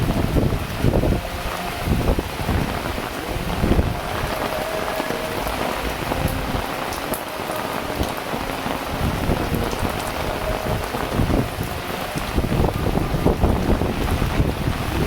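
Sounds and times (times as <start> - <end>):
heavy rain falling: 0.0 - 15.0
wind gusting against microphone: 0.0 - 15.0.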